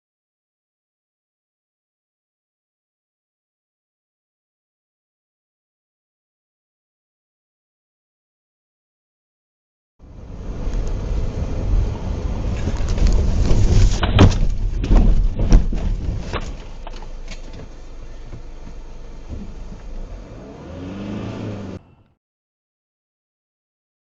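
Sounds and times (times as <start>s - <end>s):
car engine low rumble: 10.0s - 22.1s.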